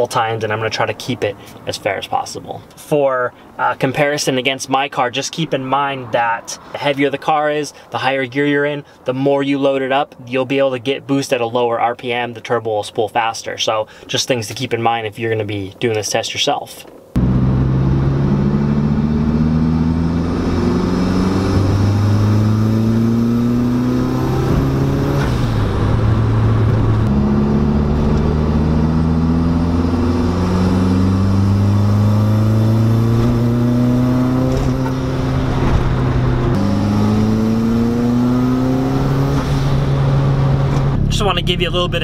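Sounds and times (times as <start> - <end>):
car engine at full throttle: 17.2 - 42.0.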